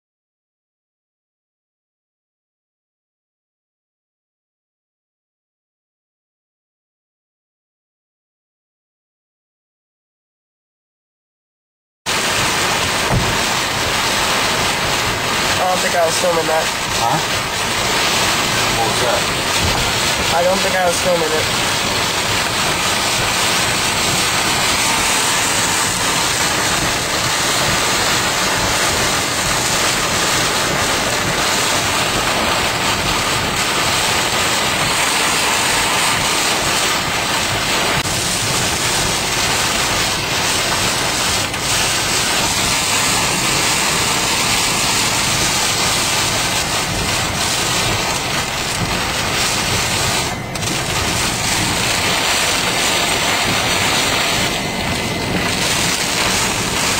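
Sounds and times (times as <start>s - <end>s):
heavy rain and wind on car: 12.1s - 56.9s.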